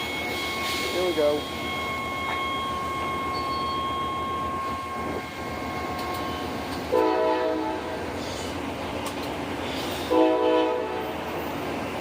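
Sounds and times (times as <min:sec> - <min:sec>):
thin steady whine: 0:00.0 - 0:06.2
train rumbling past: 0:00.0 - 0:12.0
locomotive horn blast: 0:06.9 - 0:07.9, 0:10.1 - 0:11.2.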